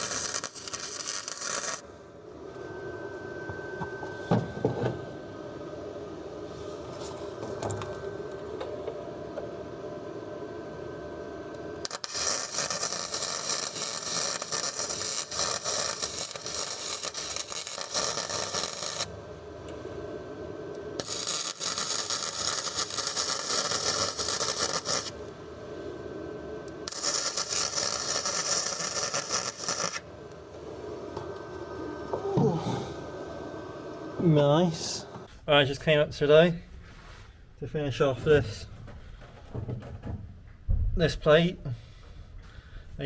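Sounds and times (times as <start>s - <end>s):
arc welding crackling hiss: 0.0s - 1.9s, 11.8s - 19.3s, 21.0s - 25.4s, 26.7s - 30.1s.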